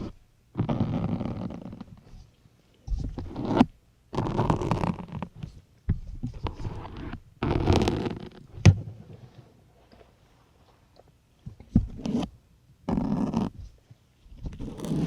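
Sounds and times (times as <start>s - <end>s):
needle squeaking into sponge: 14.4s - 15.0s.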